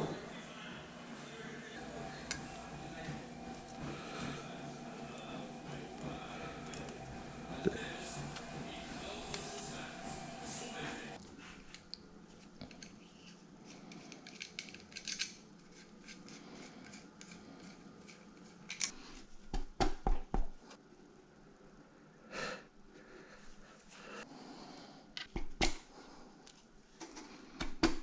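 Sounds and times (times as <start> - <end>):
tools and metal parts clicking: 13.7 - 19.0.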